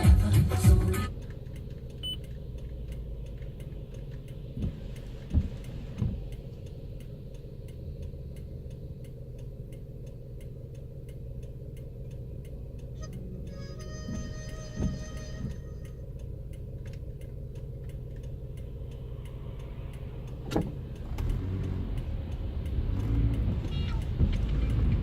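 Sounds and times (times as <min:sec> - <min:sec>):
car engine and road rumble: 0:00.0 - 0:25.0
even ticking: 0:00.0 - 0:25.0.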